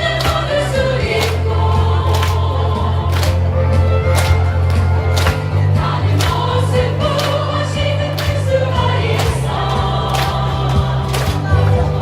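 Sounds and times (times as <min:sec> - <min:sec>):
choir singing: 0:00.0 - 0:03.2, 0:05.6 - 0:12.0
sustained bass notes: 0:00.0 - 0:12.0.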